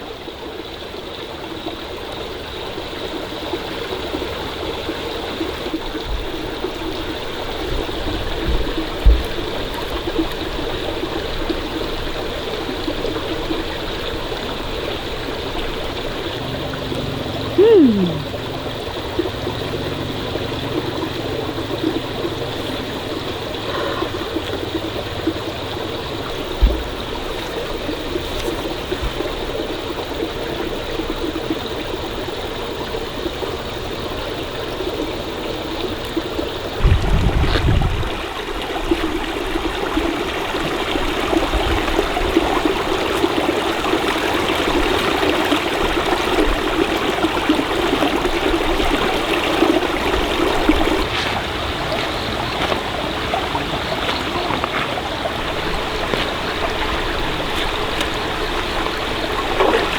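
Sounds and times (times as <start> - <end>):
stream water flowing: 0.0 - 59.9
low knocks: 7.7 - 9.8, 26.6 - 27.4.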